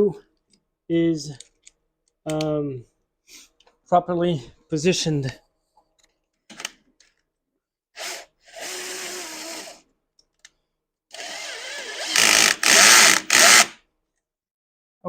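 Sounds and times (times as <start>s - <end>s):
cordless drill driving a bolt: 8.0s - 9.8s, 11.1s - 13.8s.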